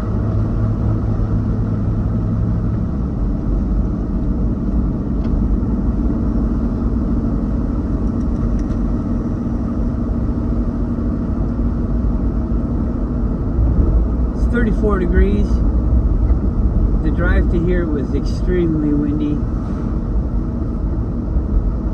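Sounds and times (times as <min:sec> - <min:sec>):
road and engine noise in car: 0:00.0 - 0:21.9.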